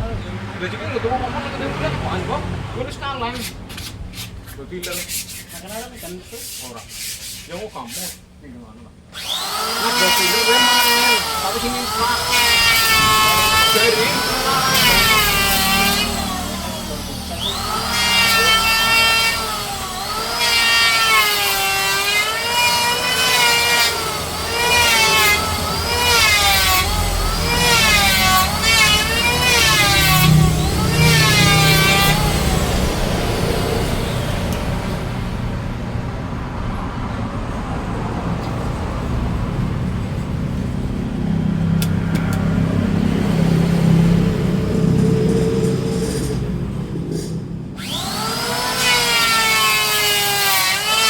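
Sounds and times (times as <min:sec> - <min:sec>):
power tool cutting wood: 0:09.1 - 0:35.3, 0:44.9 - 0:51.0.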